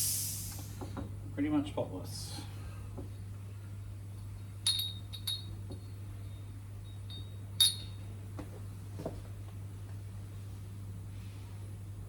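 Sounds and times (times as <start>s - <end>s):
steady low hum: 0.0s - 12.0s
small metal parts clinking: 4.7s - 5.6s.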